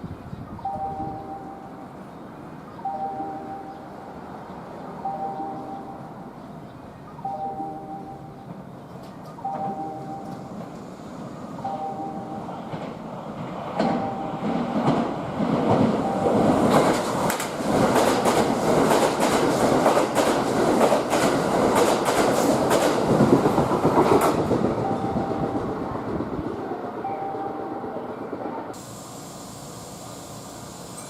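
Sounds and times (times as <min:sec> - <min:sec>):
electric train passing: 0:00.0 - 0:31.0
wheels clacking over rail joints: 0:12.4 - 0:24.9.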